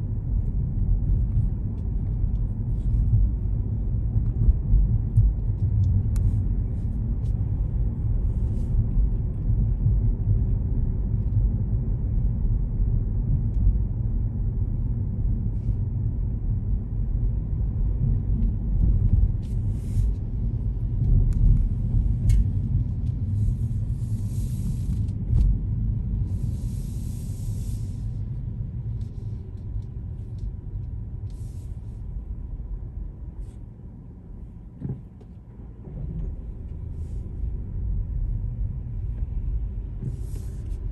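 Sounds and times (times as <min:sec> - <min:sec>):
car engine rumble and road noise: 0:00.0 - 0:40.9.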